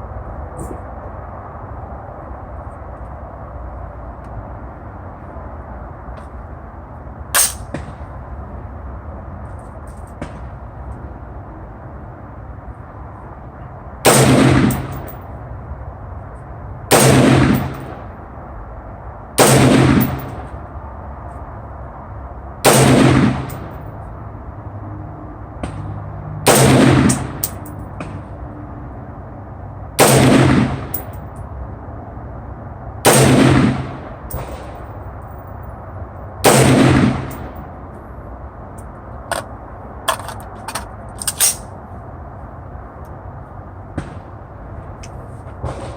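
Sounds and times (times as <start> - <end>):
rifle shots with ringing tail: 14.0 - 15.1, 16.9 - 18.0, 19.4 - 20.5, 22.6 - 23.8, 26.5 - 28.2, 30.0 - 31.1, 33.0 - 34.8, 36.4 - 37.7.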